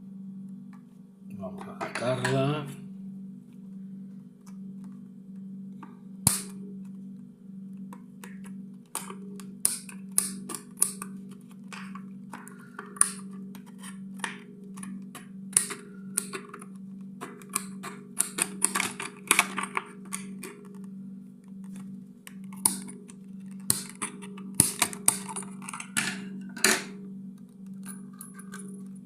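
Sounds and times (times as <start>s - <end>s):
steady low hum: 0.0s - 29.0s
plastic packaging crinkling and clicking: 7.8s - 29.0s.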